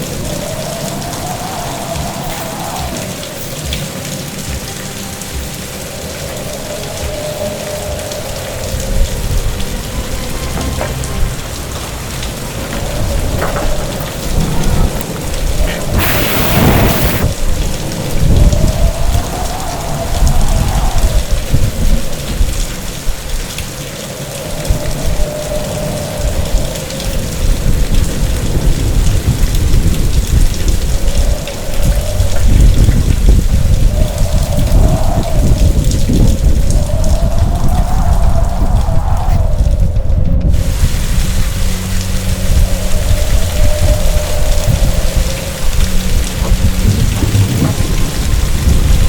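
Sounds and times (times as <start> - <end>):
heavy rain: 0.0 - 49.0
deep rolling rumble: 8.0 - 22.6, 27.4 - 49.0.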